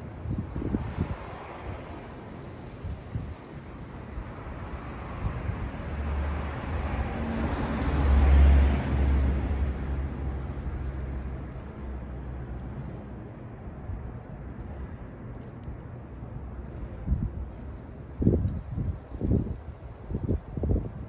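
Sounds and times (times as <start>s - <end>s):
motor vehicle passing by: 4.2s - 13.2s.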